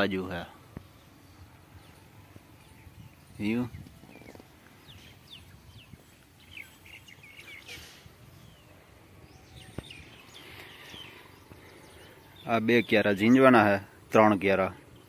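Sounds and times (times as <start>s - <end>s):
short bird chirps: 4.1s - 8.7s.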